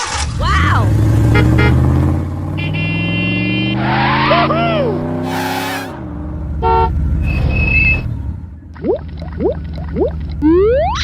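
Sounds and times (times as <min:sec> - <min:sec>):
cartoon engine rising pitch: 0:08.8 - 0:11.0.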